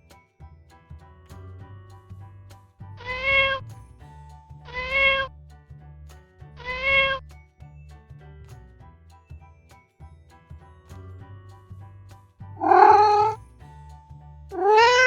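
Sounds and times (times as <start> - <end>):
background music: 0.0 - 15.0
kitten meowing: 3.0 - 3.6, 4.7 - 5.3, 6.6 - 7.2, 12.6 - 13.4, 14.6 - 15.0.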